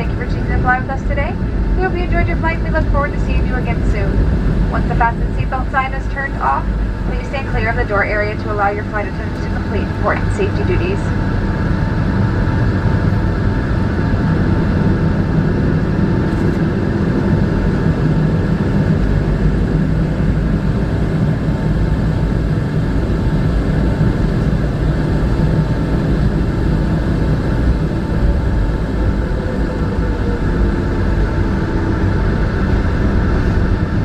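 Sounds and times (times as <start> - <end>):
faint steady hum: 0.0 - 34.0
jet engines idling rumble: 0.0 - 34.0.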